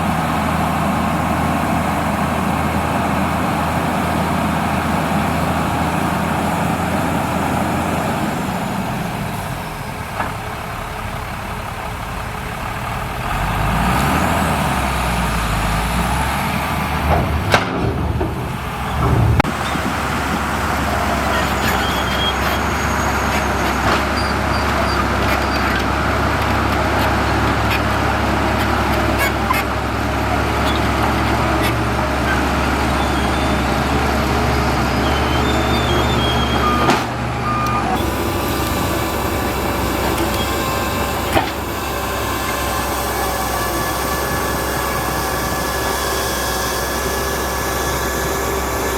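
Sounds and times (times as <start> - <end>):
heavy diesel engine running: 0.0 - 48.9
loud knock: 17.0 - 19.6.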